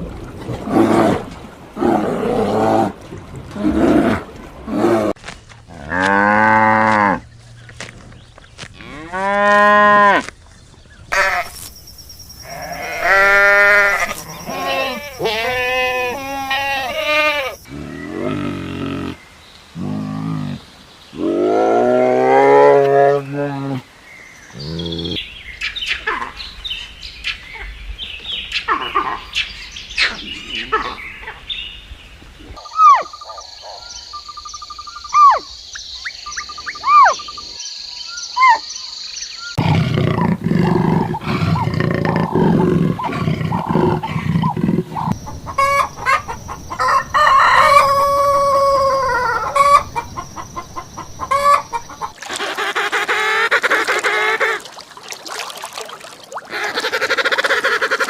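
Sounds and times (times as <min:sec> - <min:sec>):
bird calls: 0:10.9 - 0:19.9, 0:24.2 - 0:39.9, 0:41.2 - 0:54.8
chicken or rooster sounds: 0:45.1 - 0:52.4.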